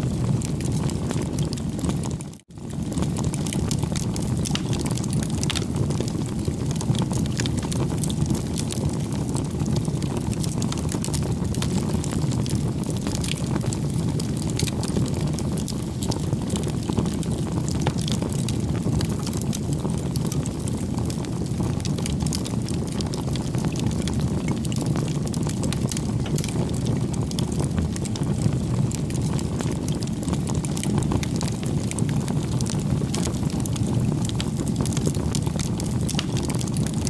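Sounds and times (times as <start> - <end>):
fire crackling and popping: 0.0 - 37.0
rumble of flames: 0.0 - 37.0.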